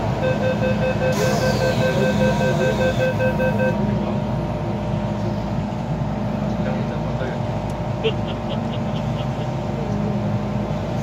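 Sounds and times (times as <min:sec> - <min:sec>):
pulsed warning beeping: 0:00.0 - 0:03.9
low train hum: 0:00.0 - 0:11.0.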